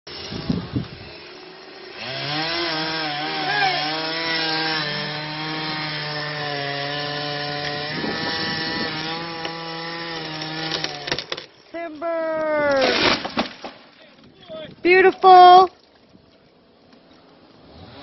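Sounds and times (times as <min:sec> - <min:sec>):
chainsaw cutting into tree: 0:00.1 - 0:11.6, 0:17.4 - 0:18.0.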